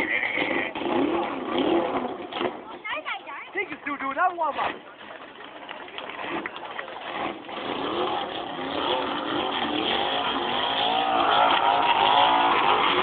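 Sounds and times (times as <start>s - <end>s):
car engine revving hard: 0.0s - 2.5s, 7.0s - 13.0s.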